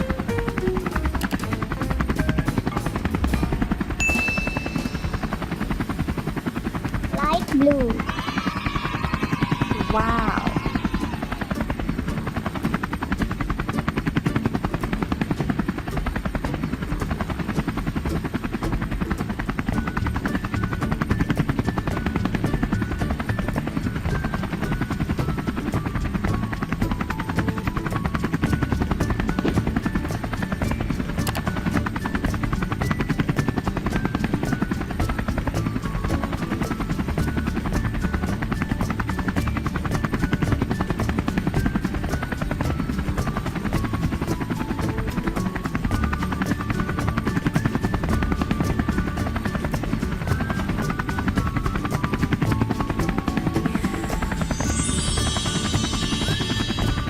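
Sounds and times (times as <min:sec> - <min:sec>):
simple melody of short notes: 0:00.0 - 0:05.5, 0:18.7 - 0:57.0
helicopter rotor chopping: 0:00.0 - 0:57.0.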